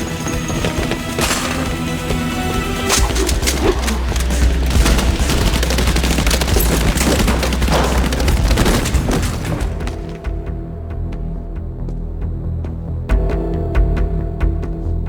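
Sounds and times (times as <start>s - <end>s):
rapid gunfire: 0.0s - 10.2s
low droning music: 0.0s - 15.0s.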